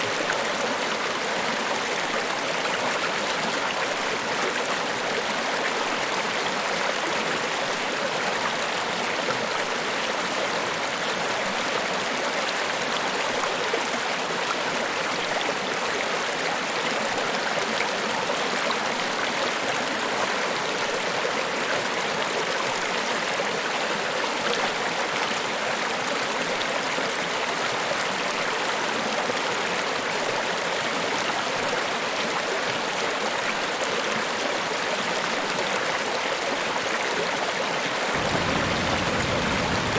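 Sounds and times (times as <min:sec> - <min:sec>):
waterfall rushing: 0:38.1 - 0:39.9.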